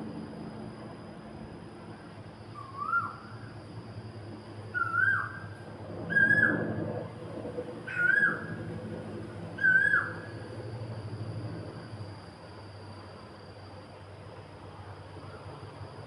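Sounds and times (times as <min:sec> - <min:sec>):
steady low hum: 0:00.0 - 0:16.0
bird whistled call: 0:02.5 - 0:03.4, 0:04.7 - 0:06.6, 0:07.9 - 0:08.6, 0:09.6 - 0:10.4.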